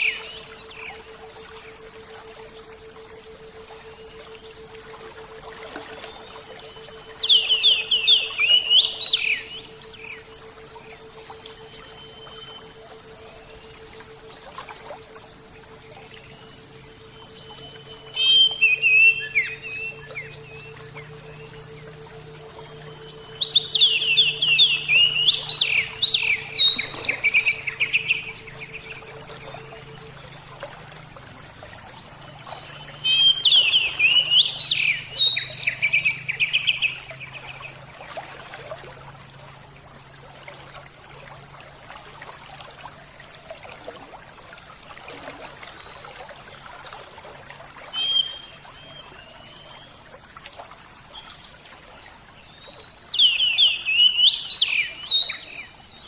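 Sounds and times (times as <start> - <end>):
water trickling: 0.0 - 56.0
bird singing whistled phrases: 17.6 - 21.4, 23.0 - 28.9, 32.4 - 37.0, 47.6 - 49.4.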